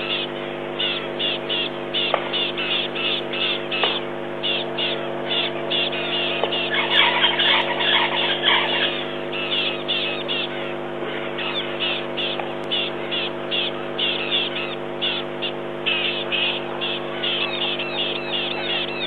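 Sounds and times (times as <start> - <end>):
birds chirping: 0.0 - 19.0
steady low hum: 0.0 - 19.0.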